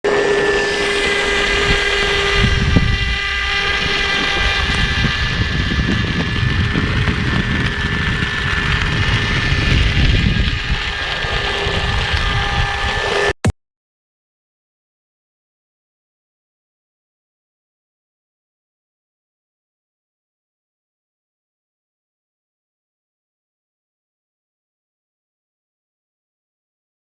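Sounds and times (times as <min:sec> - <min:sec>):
small electric motor whining: 0:00.0 - 0:13.4
uneven low rumble: 0:00.1 - 0:13.4.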